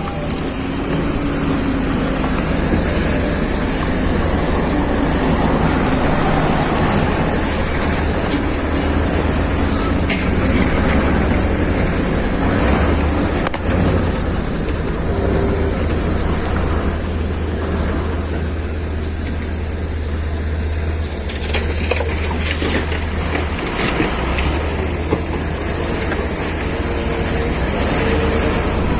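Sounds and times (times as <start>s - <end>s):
knocks and clatter: 0.0s - 15.0s
diesel engine running: 0.0s - 28.9s.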